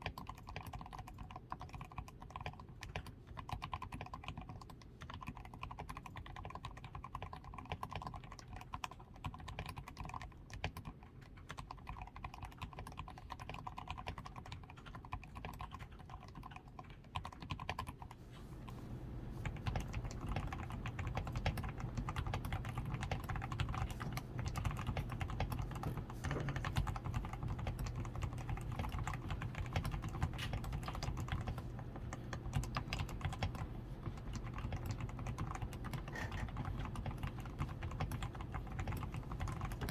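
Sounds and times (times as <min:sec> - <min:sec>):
mechanical keyboard typing: 0:00.0 - 0:18.2, 0:19.4 - 0:39.9.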